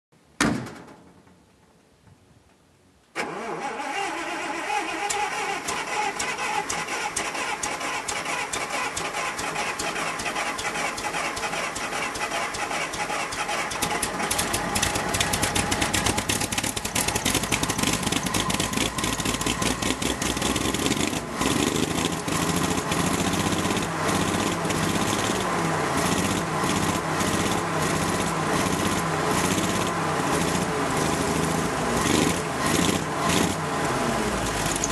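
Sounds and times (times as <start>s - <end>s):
thump: 0.4s - 1.4s
car engine starting and running: 3.2s - 34.9s.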